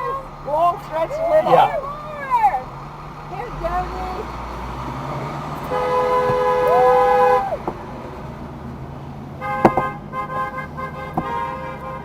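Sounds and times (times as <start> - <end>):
car horns honking: 0.0 - 2.6, 5.6 - 7.7, 9.4 - 12.0.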